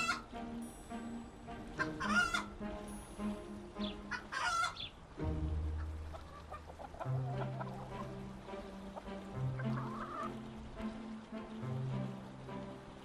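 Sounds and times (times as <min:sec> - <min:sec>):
loud sharp chicken calls: 0:00.0 - 0:00.3, 0:01.8 - 0:02.5, 0:03.9 - 0:05.0
chickens clucking: 0:00.0 - 0:00.4, 0:01.6 - 0:02.7, 0:03.8 - 0:05.0, 0:05.7 - 0:10.5
quiet background music: 0:00.0 - 0:13.0.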